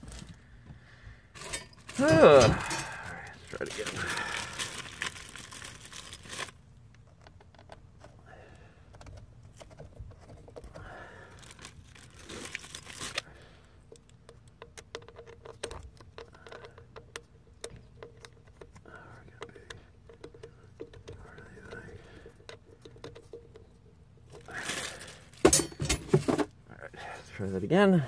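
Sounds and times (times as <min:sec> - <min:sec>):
materials rustling and scraping: 0:01.3 - 0:08.2, 0:09.0 - 0:13.2, 0:17.8 - 0:26.6
faint clicks and taps: 0:13.9 - 0:24.3.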